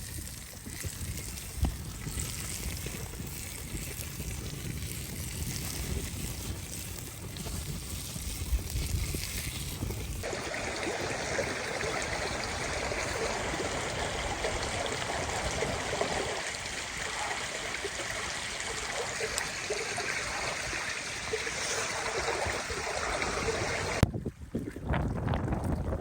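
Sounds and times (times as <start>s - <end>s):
running water: 0.0s - 26.0s.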